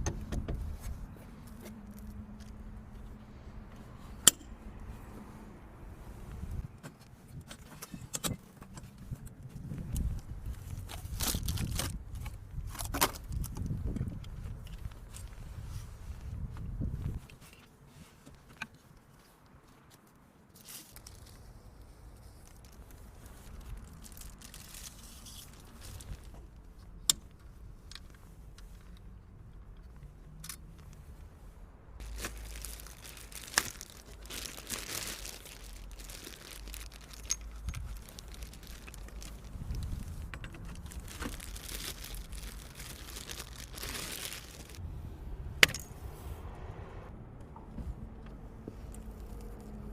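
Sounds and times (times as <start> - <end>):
handling rustling and rumble: 0.0 - 46.5
packaging crinkling: 22.5 - 26.3, 32.0 - 44.8.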